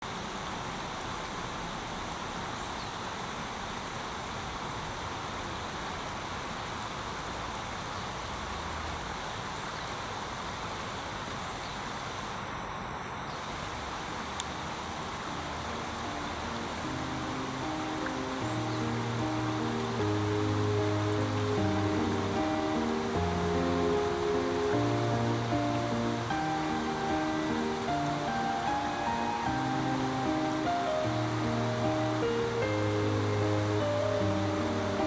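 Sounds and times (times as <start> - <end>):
river water pouring over a weir: 0.0 - 35.0.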